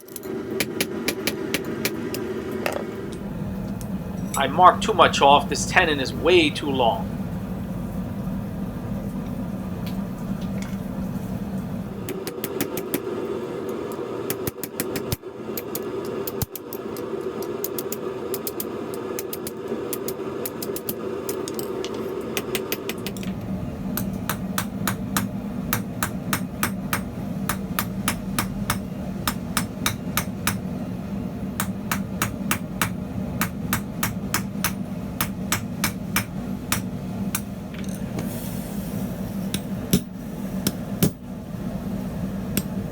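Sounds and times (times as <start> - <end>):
steady workshop hum: 0.0 - 42.9
hammer striking steel on anvil: 24.0 - 30.6, 31.6 - 38.0, 39.5 - 41.3.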